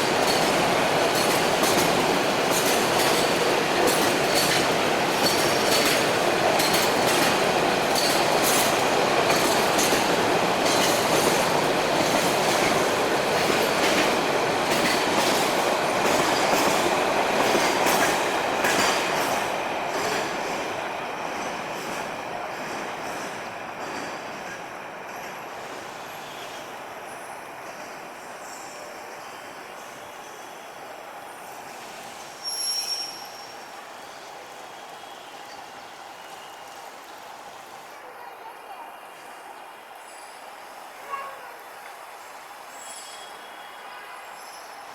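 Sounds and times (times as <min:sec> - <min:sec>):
wheels clacking over rail joints: 0:00.0 - 0:20.7.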